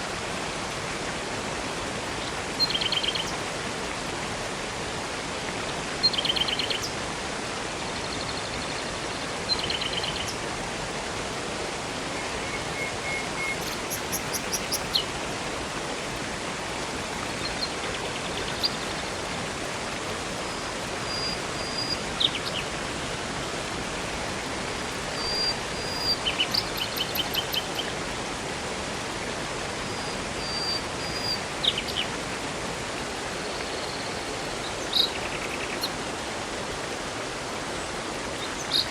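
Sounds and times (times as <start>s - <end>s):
river and waterfall rushing: 0.0s - 38.9s
small birds chirping: 12.1s - 15.1s, 25.2s - 27.9s, 33.6s - 35.9s.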